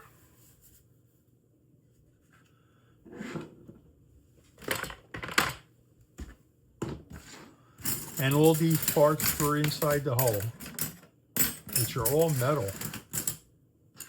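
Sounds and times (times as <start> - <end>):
small parts clicking and clattering: 7.8 - 14.0.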